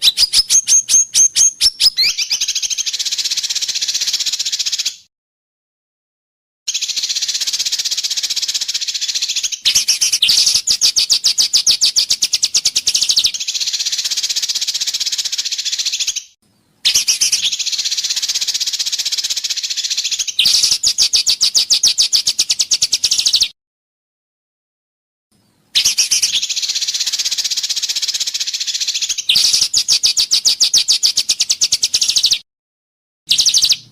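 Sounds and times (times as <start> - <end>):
bird buzzing rattling call: 6.7 - 16.1, 17.0 - 21.8, 25.9 - 32.2.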